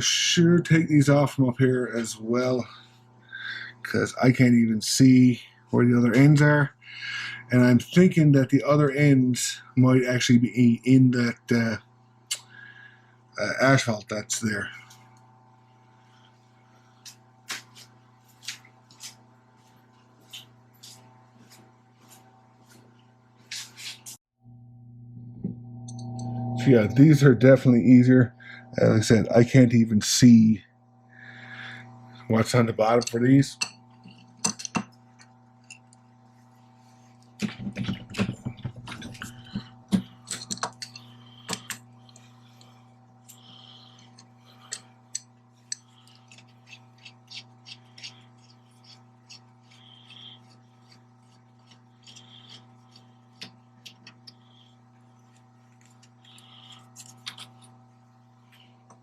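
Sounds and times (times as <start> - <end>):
steady low hum: 0.0 - 59.0
metal tools clinking and knocking: 33.0 - 35.9, 40.2 - 41.8
hand tools clicking and tapping: 33.0 - 36.0, 37.4 - 42.2, 43.3 - 49.0.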